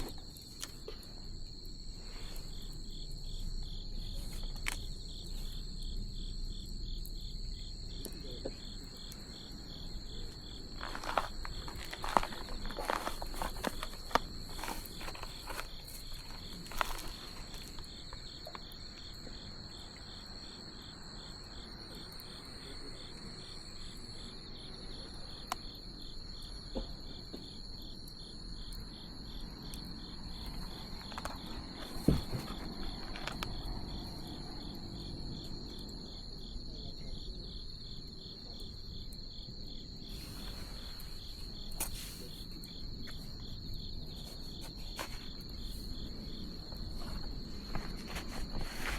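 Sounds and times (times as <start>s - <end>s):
bonfire crackling and popping: 0.0s - 20.6s
insects trilling: 0.0s - 48.9s.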